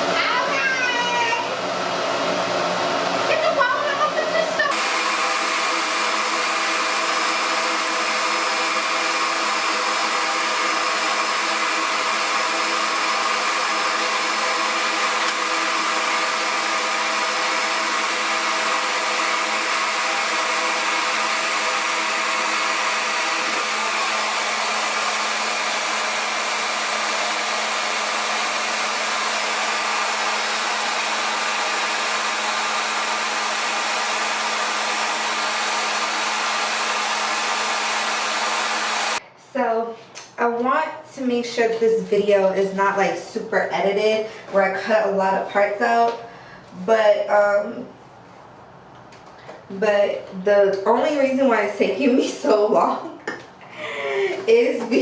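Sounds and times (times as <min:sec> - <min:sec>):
hair dryer running: 0:00.0 - 0:39.2, 0:53.3 - 0:55.0.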